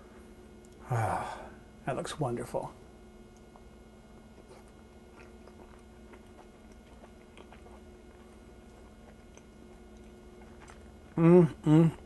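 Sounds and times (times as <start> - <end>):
low steady hum: 0.0 - 12.0
person chewing food: 3.3 - 12.0.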